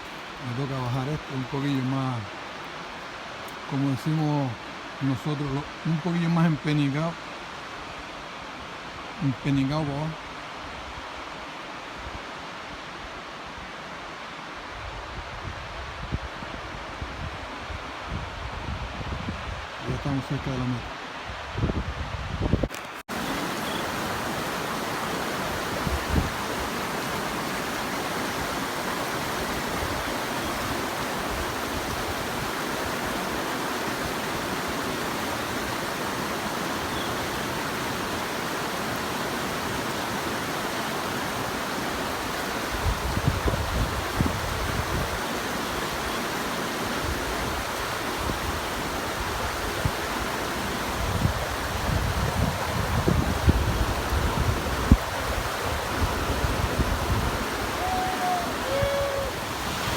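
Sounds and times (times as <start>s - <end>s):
fast-flowing water rushing: 0.0s - 14.5s, 22.4s - 59.9s
wind buffeting microphone: 21.3s - 33.0s, 42.7s - 45.2s, 50.8s - 59.9s.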